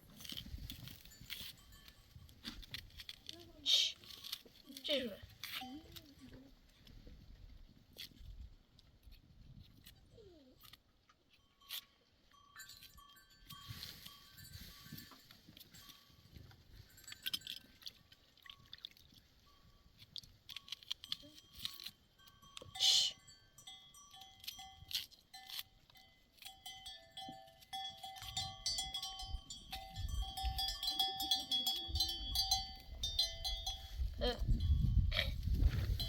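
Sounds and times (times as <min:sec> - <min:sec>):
sheep and goat bells clinking: 0:00.0 - 0:08.3, 0:09.2 - 0:36.0.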